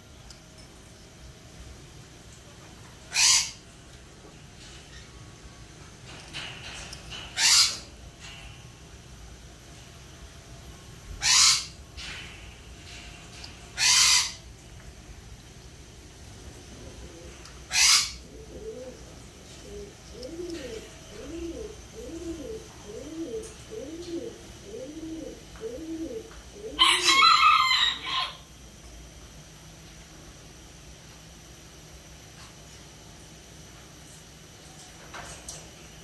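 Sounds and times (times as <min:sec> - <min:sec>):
birds calling: 0:03.0 - 0:03.7, 0:06.1 - 0:08.5, 0:11.1 - 0:12.2, 0:13.4 - 0:14.6, 0:16.9 - 0:28.4.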